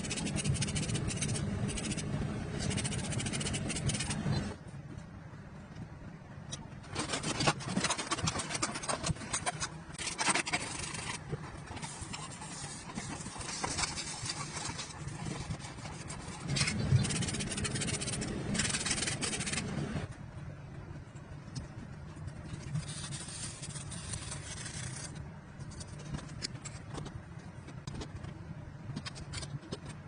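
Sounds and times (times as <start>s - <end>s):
scraping and rubbing on metal: 0.0s - 4.6s, 6.8s - 20.1s, 22.2s - 26.9s.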